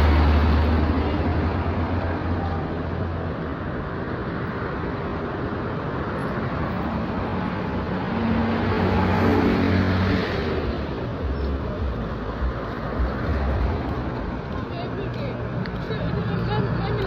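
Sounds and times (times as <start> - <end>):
steady traffic noise: 0.0 - 17.0
vehicle passing close by: 4.2 - 11.7.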